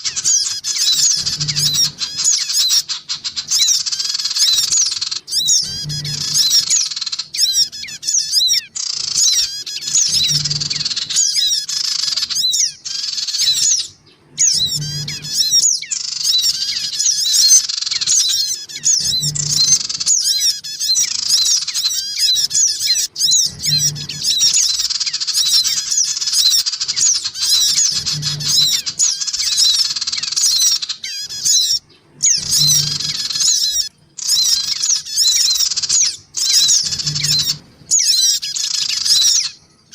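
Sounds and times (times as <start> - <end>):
birds chirping agitatedly: 0.0 - 39.9.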